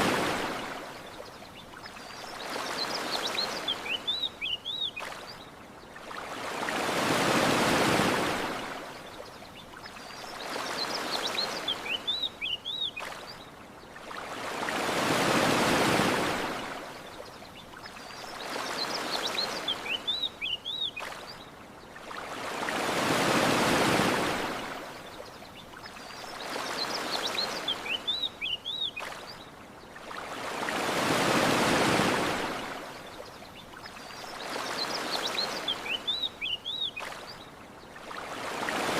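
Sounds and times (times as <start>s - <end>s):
ocean waves washing ashore: 0.0s - 38.9s
bird chirps: 1.6s - 5.4s, 9.6s - 13.4s, 18.1s - 21.4s, 25.6s - 29.4s, 33.6s - 37.5s.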